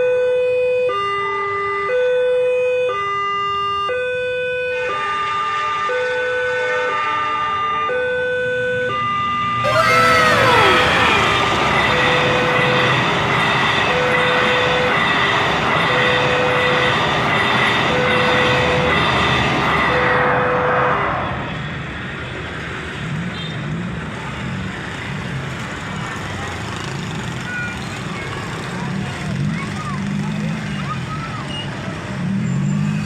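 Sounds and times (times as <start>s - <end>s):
train horn: 4.8s - 7.5s, 9.6s - 13.2s, 19.9s - 21.3s
road traffic: 8.4s - 33.0s
train wheels on rails: 9.7s - 20.0s.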